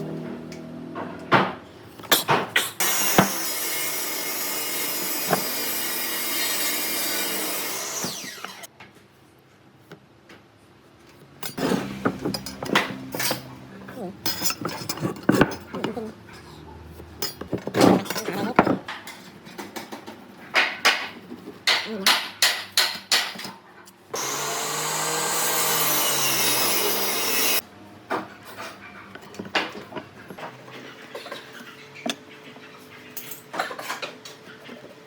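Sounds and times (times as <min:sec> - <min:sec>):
power tool cutting wood: 0:02.8 - 0:08.7, 0:24.2 - 0:27.6.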